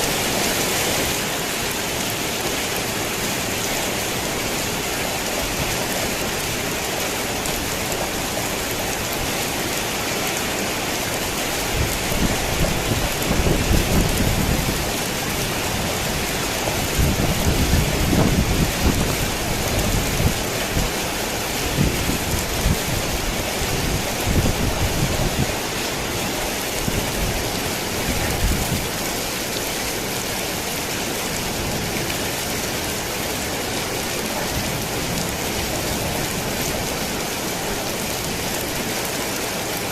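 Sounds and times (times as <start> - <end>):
rain on a tin roof: 0.0 - 39.9
thunder rumbling: 11.6 - 25.6.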